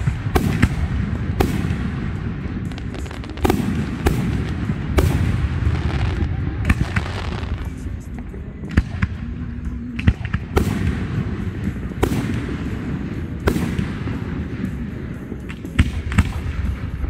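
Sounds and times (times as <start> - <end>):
fireworks bangs: 0.0 - 9.4
low rumble: 0.0 - 15.1.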